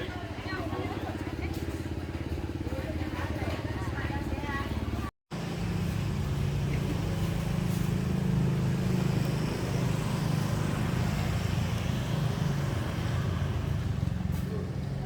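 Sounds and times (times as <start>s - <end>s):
vehicle engine with road noise: 0.0s - 15.0s.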